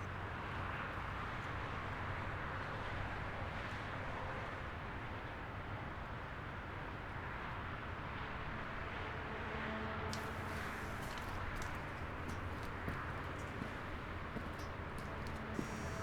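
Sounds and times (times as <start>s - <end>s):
vehicle road and engine noise: 10.1s - 16.0s.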